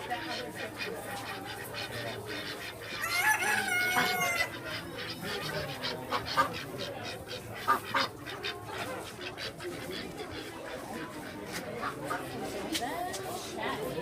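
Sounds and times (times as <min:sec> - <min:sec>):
poultry calling: 0:00.1 - 0:12.4.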